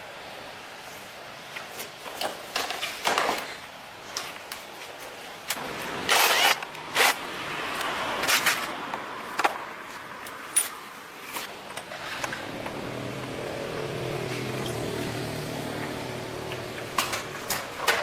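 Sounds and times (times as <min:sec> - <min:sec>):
mechanical hum: 0:09.8 - 0:18.0.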